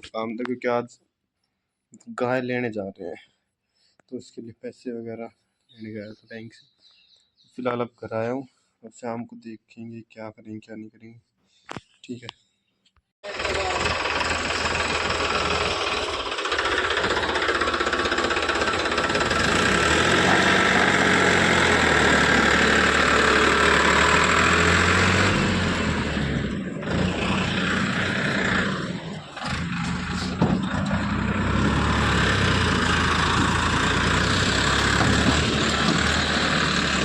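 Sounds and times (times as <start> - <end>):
vehicle engine running: 13.3 - 37.0.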